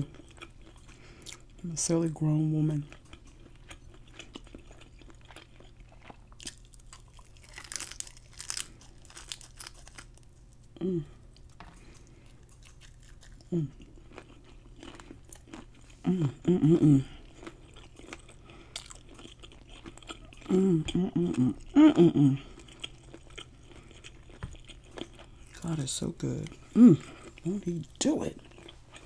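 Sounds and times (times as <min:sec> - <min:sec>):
chewing crunchy fried food: 0:00.0 - 0:29.0
eater humming: 0:15.9 - 0:17.4, 0:20.0 - 0:23.8.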